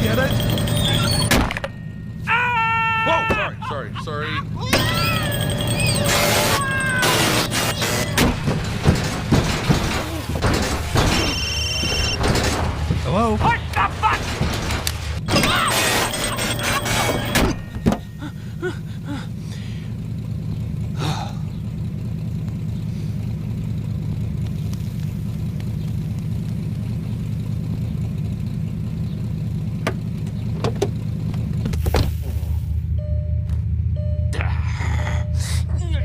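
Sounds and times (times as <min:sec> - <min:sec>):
cartoon car engine rumble: 0:00.0 - 0:36.0.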